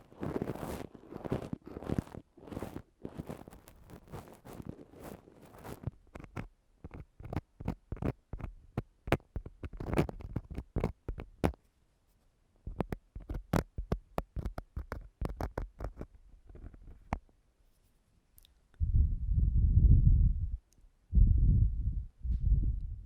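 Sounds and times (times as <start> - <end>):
tool scratching against microphone: 0.0 - 8.5, 9.1 - 11.6, 12.7 - 18.0.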